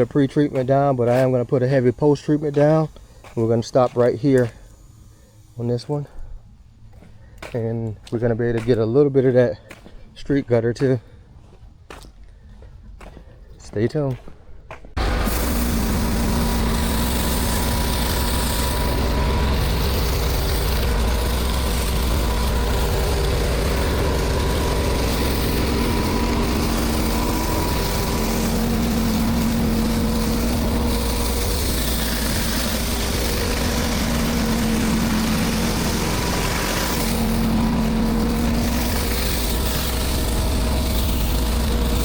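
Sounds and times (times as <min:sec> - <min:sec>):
pressure washer engine running: 0:00.0 - 0:04.8, 0:15.0 - 0:42.0.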